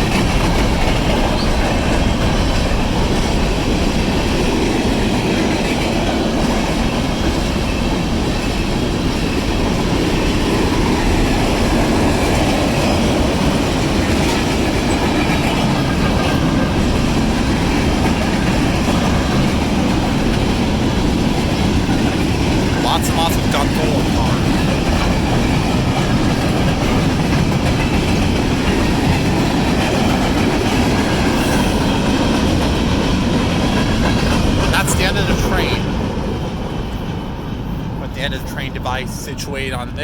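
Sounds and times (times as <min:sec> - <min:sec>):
steel wheels on rail: 0:00.0 - 0:22.9, 0:24.0 - 0:38.0.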